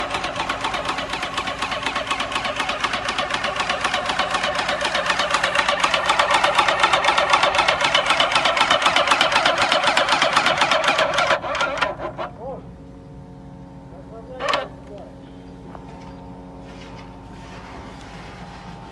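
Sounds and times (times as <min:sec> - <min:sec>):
paint sprayer pump clattering: 0:00.0 - 0:12.4.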